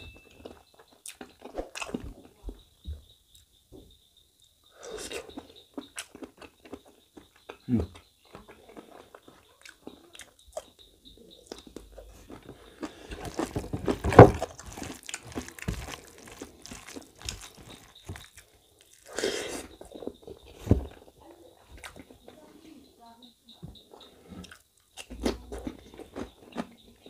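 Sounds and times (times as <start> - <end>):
chewing and mouth smacking: 0.4 - 2.3, 4.9 - 10.8, 11.4 - 20.4.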